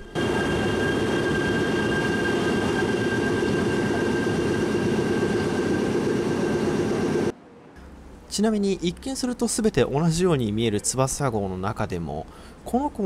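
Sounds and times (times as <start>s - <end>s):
electric train rumble: 0.0s - 8.2s
high whine tones: 0.0s - 8.3s.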